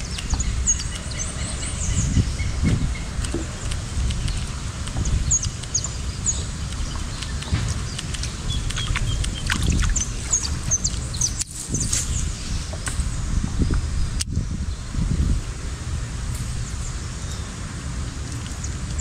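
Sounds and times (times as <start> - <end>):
small birds chirping: 0.0 - 15.0
steady low rumble: 0.0 - 19.0.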